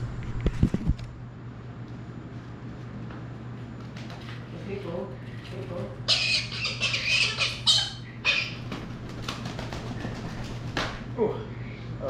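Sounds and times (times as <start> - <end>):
parrot screeching: 6.0 - 8.7.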